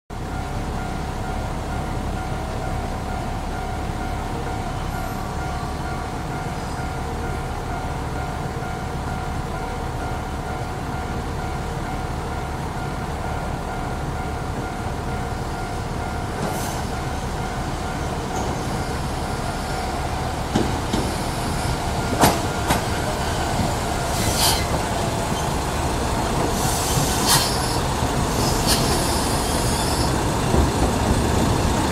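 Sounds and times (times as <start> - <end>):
diesel railcar engine drone: 0.1 - 31.9
wheels squealing on rail: 18.0 - 25.8, 26.4 - 30.9.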